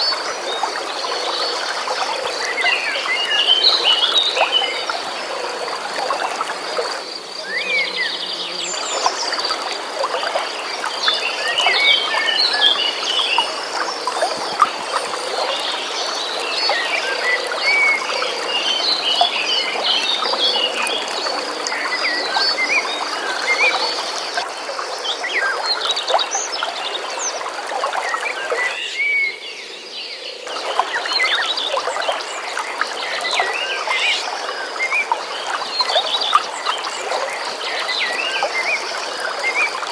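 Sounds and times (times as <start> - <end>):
flowing water: 0.0 - 39.9
frogs calling: 0.0 - 39.9.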